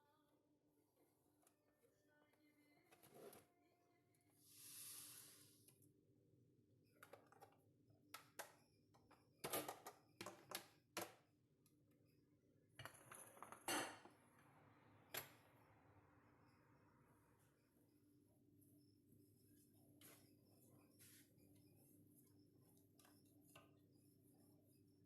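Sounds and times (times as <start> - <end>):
dishes clinking and knocking: 12.8 - 14.2.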